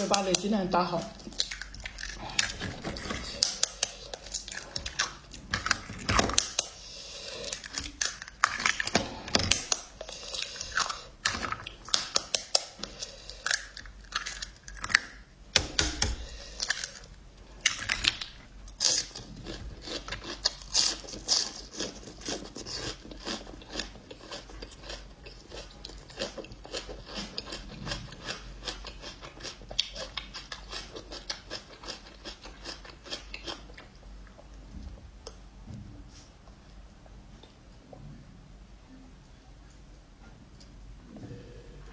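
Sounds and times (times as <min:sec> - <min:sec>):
person chewing noodles: 0:01.1 - 0:15.3, 0:16.2 - 0:34.6.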